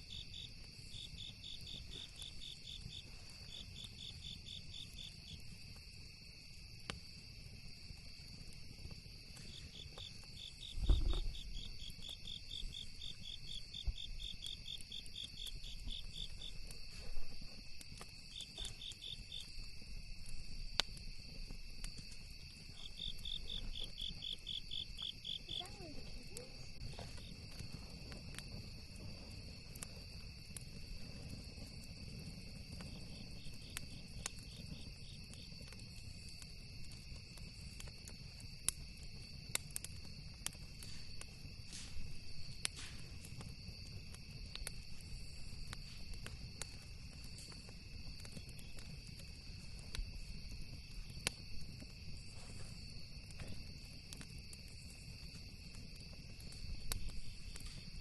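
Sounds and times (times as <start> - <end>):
campfire crackles: 0.0 - 58.0
cricket chirps: 0.0 - 58.0
insects droning: 0.0 - 58.0
low thump: 10.8 - 11.4.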